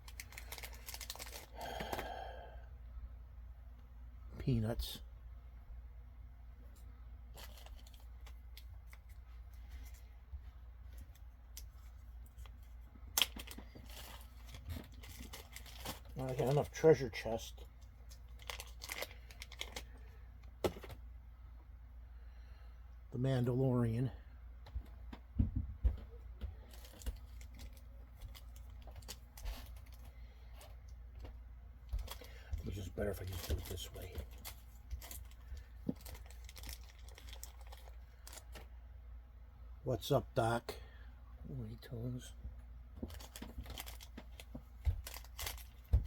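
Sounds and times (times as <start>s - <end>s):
packaging rustling: 0.0s - 2.1s, 7.3s - 9.2s, 11.1s - 16.8s, 18.1s - 20.0s, 26.7s - 30.1s, 32.0s - 38.7s, 43.0s - 46.0s
low steady hum: 0.0s - 46.0s.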